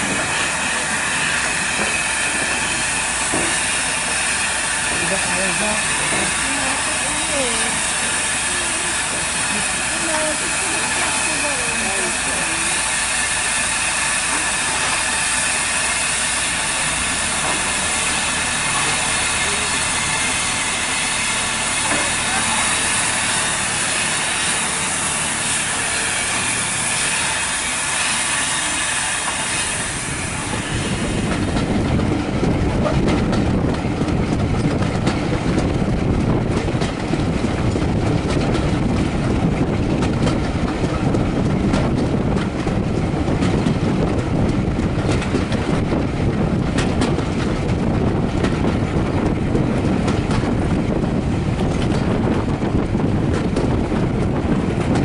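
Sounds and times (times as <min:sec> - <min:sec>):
loud steam hiss: 0:00.0 - 0:32.0
train wheels clattering over joints: 0:00.0 - 0:55.0.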